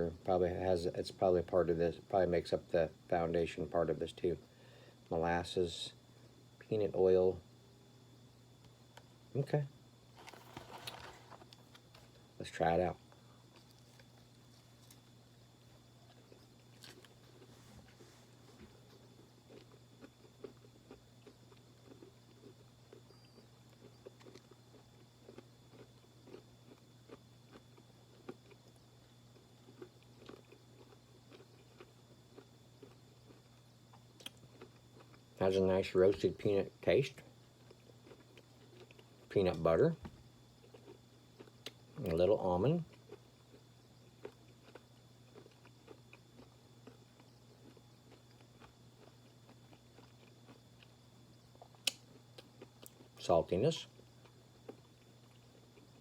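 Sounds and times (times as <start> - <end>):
low electrical hum: 0.0 - 56.0
person chewing: 16.0 - 17.5, 19.4 - 28.8, 29.6 - 35.2, 37.6 - 39.0, 40.6 - 42.2, 43.0 - 51.0, 51.6 - 53.2.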